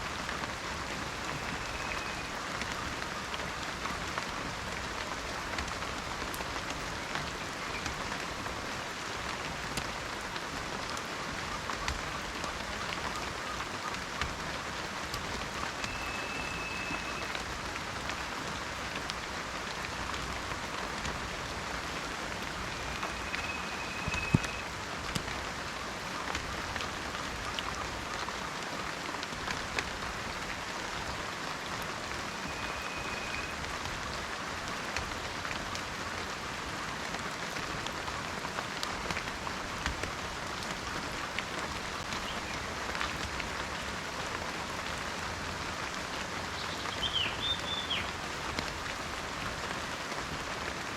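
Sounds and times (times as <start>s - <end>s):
rain falling in a forest: 0.0s - 50.9s
raindrop impacts: 1.1s - 28.2s
faint high whistles: 15.8s - 17.3s, 22.7s - 24.6s, 32.3s - 33.6s.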